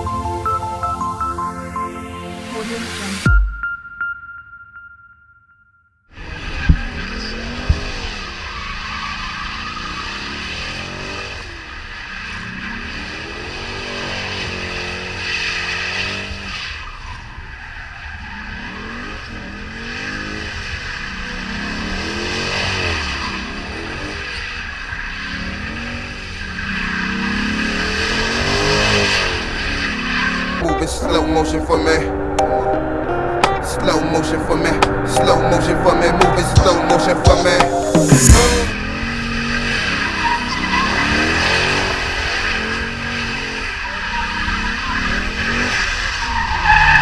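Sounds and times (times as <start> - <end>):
tyres squealing on wet track: 6.2 - 30.7, 38.8 - 47.0
car engine revving: 6.2 - 47.0.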